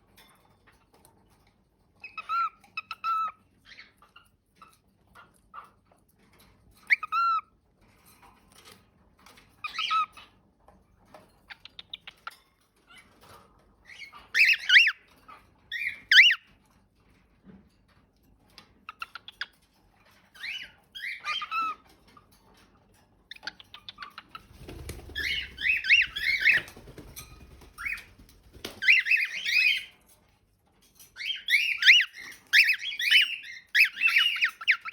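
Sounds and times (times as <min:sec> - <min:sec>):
cockatiel chirping and whistling: 0:06.9 - 0:07.4, 0:09.6 - 0:10.2, 0:13.9 - 0:15.0, 0:15.7 - 0:16.5, 0:20.4 - 0:21.8, 0:25.1 - 0:26.8, 0:28.7 - 0:29.9, 0:31.2 - 0:34.9.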